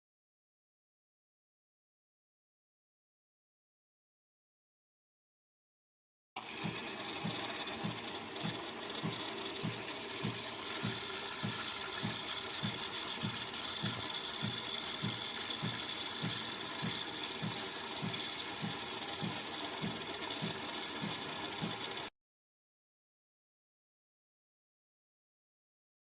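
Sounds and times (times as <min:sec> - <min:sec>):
coffee machine hiss and whine: 0:06.4 - 0:22.1.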